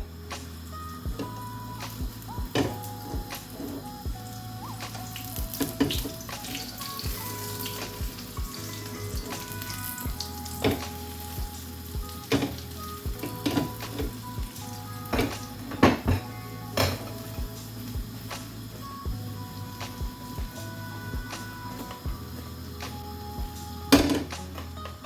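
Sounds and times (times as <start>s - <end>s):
egg sizzling in frying pan: 0.1s - 25.0s
oil popping: 0.1s - 25.0s.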